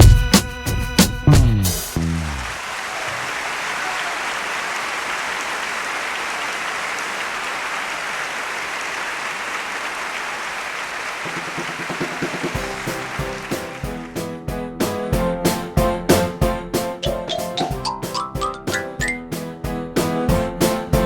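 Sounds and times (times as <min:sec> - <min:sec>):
applause: 0:02.0 - 0:14.3.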